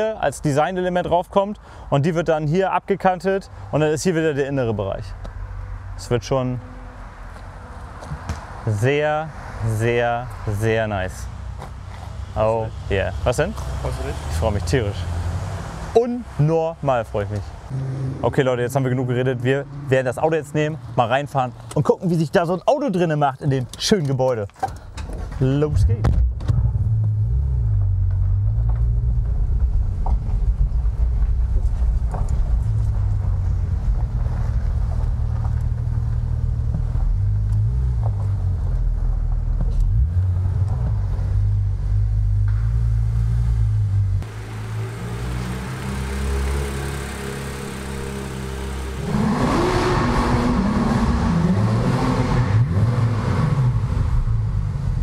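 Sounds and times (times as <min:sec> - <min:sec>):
car engine idling and revving: 0:04.6 - 0:21.8, 0:25.5 - 0:55.0.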